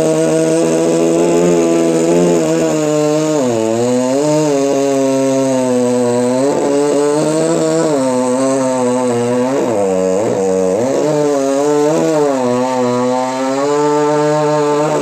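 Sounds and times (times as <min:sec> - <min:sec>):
chainsaw cutting tree trunk: 0:00.0 - 0:15.0.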